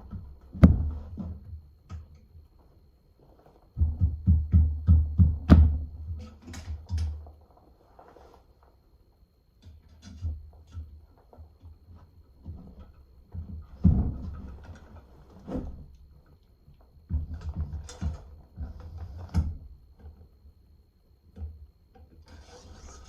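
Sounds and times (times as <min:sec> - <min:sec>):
knocks and rustling: 0:09.8 - 0:16.0.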